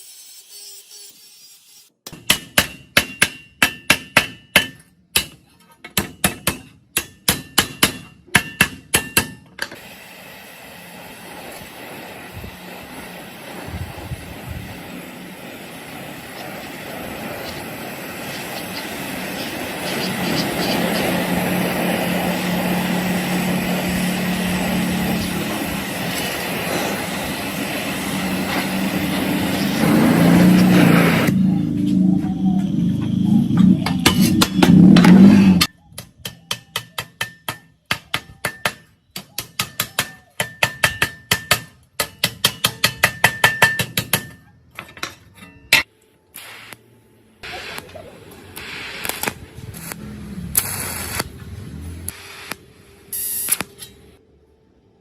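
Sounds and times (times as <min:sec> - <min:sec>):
hammer striking metal: 0:02.0 - 0:09.8, 0:33.5 - 0:45.9
steady mechanical noise: 0:09.6 - 0:35.7, 0:45.4 - 0:55.0
low hum: 0:21.0 - 0:35.7.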